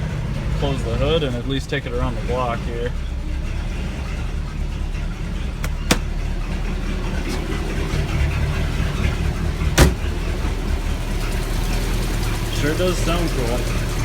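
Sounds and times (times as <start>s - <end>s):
car engine idling: 0.0s - 14.0s
loud slam: 9.8s - 10.2s.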